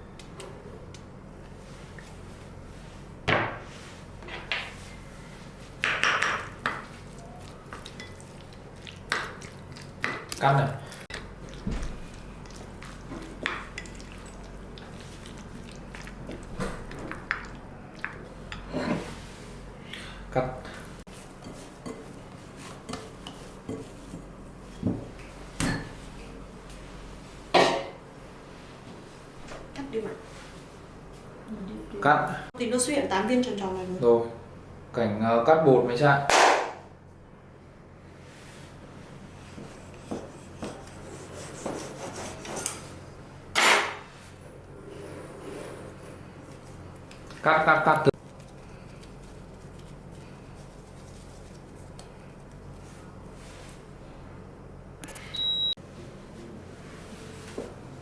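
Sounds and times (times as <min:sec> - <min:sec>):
knocks and scrapes on a counter: 0:39.6 - 0:42.8.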